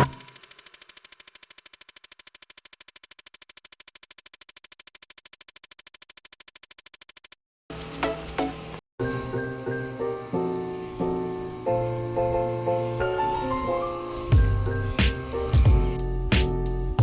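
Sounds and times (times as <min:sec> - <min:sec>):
fast pulsing synthesizer: 0:00.0 - 0:07.3.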